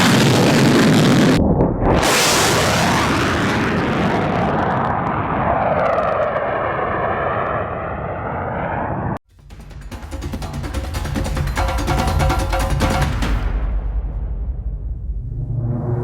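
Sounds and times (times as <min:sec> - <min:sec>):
jet engine flying past: 0:01.3 - 0:09.2, 0:14.6 - 0:16.0.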